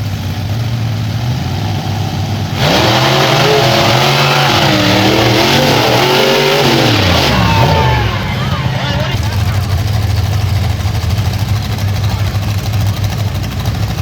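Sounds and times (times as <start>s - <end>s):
monster truck engines revving: 0.0s - 14.0s.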